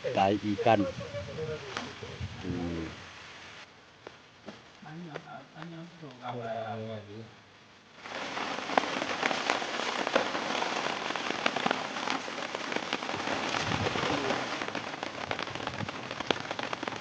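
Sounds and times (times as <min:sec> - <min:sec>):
heavy rain falling: 0:07.9 - 0:17.0.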